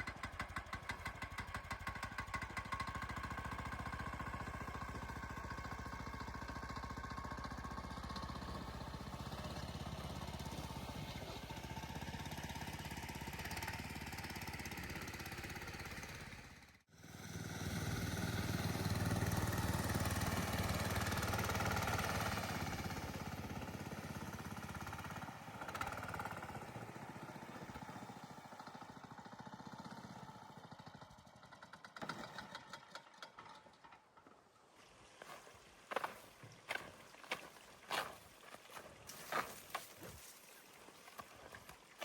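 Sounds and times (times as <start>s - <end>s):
small engine running: 0.0s - 34.3s.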